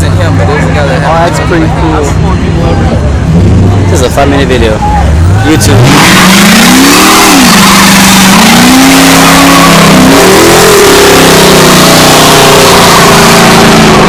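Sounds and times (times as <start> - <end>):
car engine revving hard: 5.5 - 14.0.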